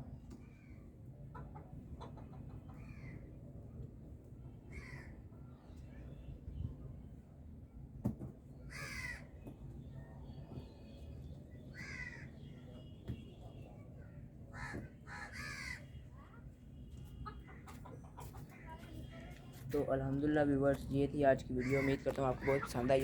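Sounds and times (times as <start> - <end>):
harsh bird cawing: 4.7 - 5.2, 8.7 - 9.3, 11.7 - 12.4, 14.5 - 16.0.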